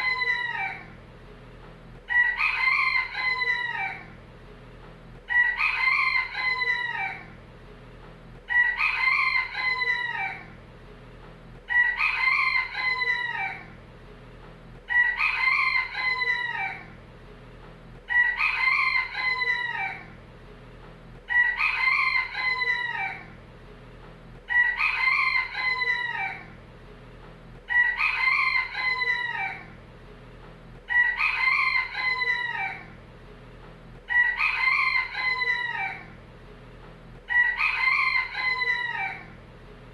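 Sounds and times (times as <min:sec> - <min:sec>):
rooster crowing: 0:00.0 - 0:01.0, 0:02.1 - 0:04.2, 0:05.3 - 0:07.4, 0:08.5 - 0:10.6, 0:11.7 - 0:13.8, 0:14.9 - 0:17.0, 0:18.1 - 0:20.2, 0:21.3 - 0:23.4, 0:24.5 - 0:26.6, 0:27.7 - 0:29.8, 0:30.9 - 0:33.0, 0:34.1 - 0:36.2, 0:37.2 - 0:39.4.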